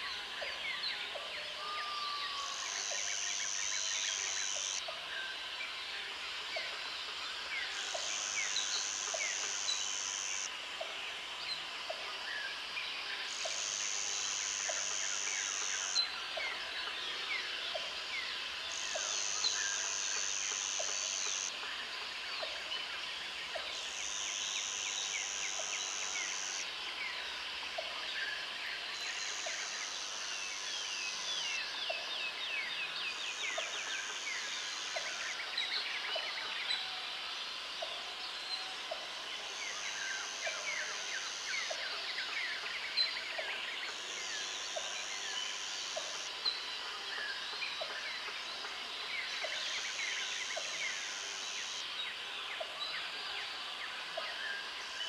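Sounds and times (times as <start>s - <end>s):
high insect buzz: 2.3s - 4.8s, 7.8s - 10.5s, 13.3s - 16.1s, 23.8s - 26.7s.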